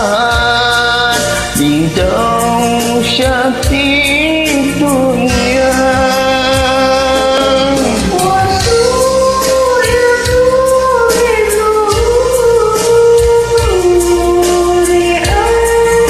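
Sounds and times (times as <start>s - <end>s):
backing track with low beat: 0.0s - 16.0s
person singing karaoke: 0.0s - 16.0s.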